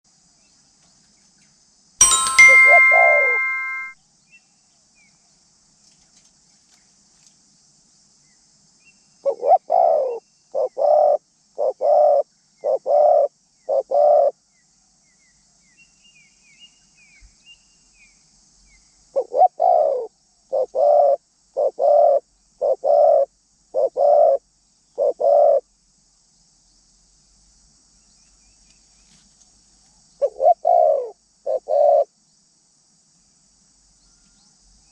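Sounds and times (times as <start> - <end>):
sharp click with ringing chime: 2.0 - 4.0
dove cooing: 9.3 - 14.3, 19.2 - 24.4, 25.0 - 25.6, 30.2 - 32.1.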